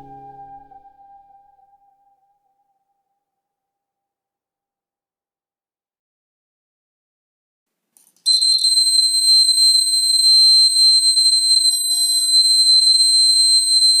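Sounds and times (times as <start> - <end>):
high-pitched buzzer alarm tone: 8.3 - 14.0.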